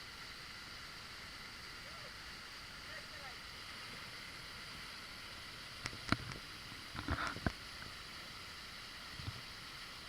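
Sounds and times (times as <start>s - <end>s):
waterfall rushing: 1.3s - 5.6s.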